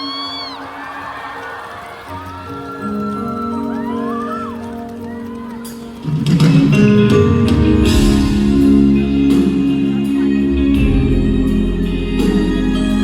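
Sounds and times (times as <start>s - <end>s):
live band music: 4.7s - 13.0s
guitar chords: 5.6s - 13.0s.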